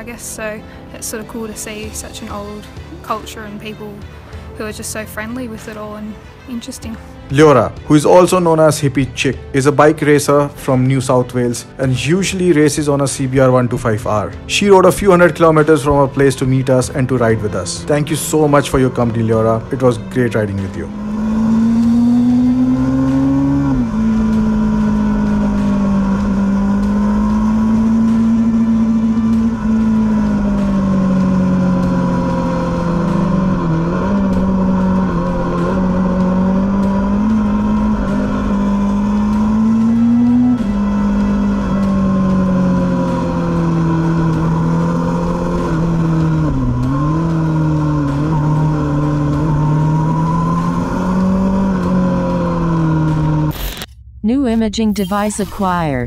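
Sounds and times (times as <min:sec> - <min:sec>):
motorcycle engine at high revs: 0:12.6 - 0:53.9.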